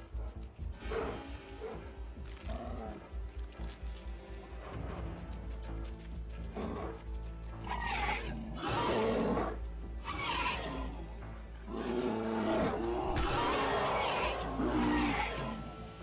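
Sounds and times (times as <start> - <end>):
dramatic music score: 0.0 - 16.0
animal growls and roars: 6.4 - 15.9.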